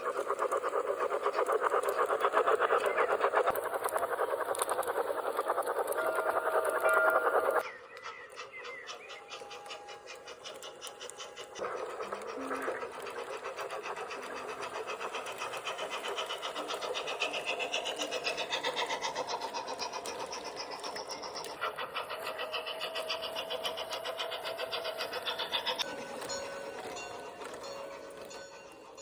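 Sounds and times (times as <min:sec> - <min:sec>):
steam engine chuffs from speaker: 0:08.6 - 0:29.0.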